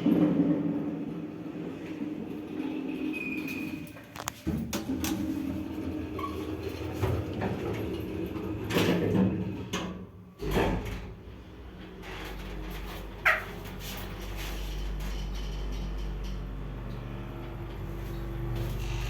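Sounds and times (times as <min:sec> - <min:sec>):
elevator doors clunking: 0:00.0 - 0:14.1.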